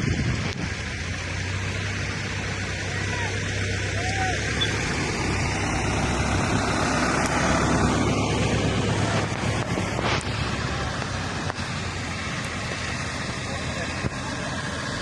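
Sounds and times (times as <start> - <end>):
wind noise on microphone: 0.0 - 1.0
low engine hum: 0.0 - 15.0.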